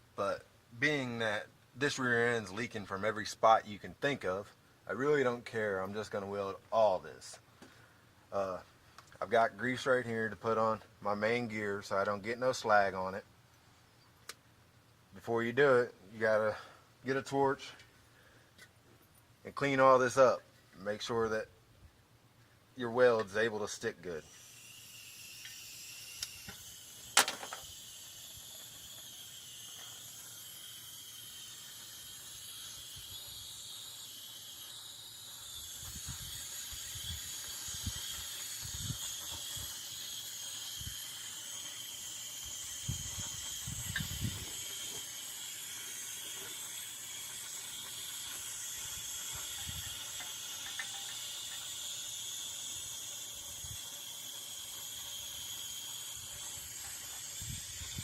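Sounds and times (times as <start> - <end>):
gas torch hissing: 23.6 - 58.0.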